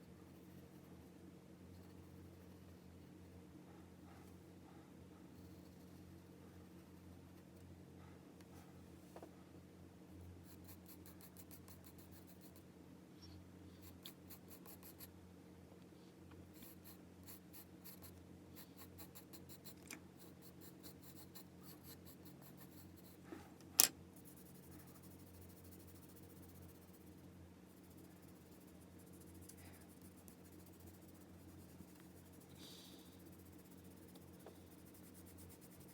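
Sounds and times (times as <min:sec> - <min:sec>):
steady low hum: 0:00.0 - 0:35.9
pencil scratching on paper: 0:10.4 - 0:12.6, 0:13.8 - 0:15.1, 0:16.5 - 0:23.3, 0:24.2 - 0:35.9.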